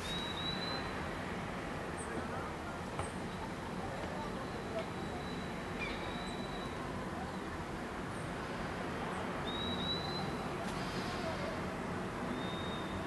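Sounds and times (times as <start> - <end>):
small birds whistling: 0.0 - 0.9, 9.5 - 10.4, 12.3 - 13.0.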